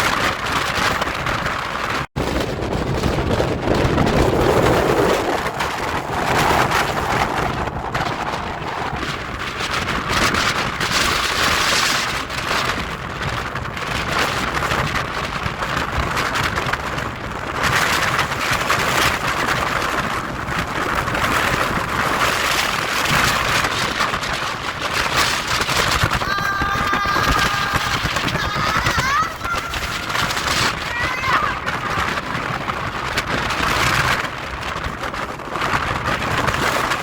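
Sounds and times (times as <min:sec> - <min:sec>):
strong wind on microphone: 0:00.0 - 0:37.0
heavy ocean surf: 0:18.0 - 0:37.0.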